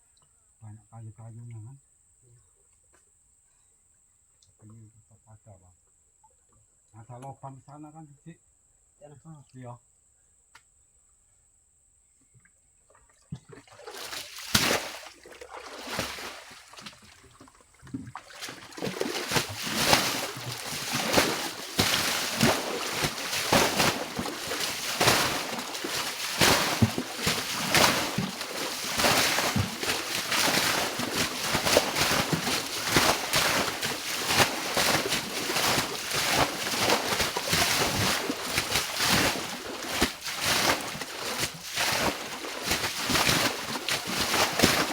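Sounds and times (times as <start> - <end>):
water splashing and sloshing: 12.9 - 44.9.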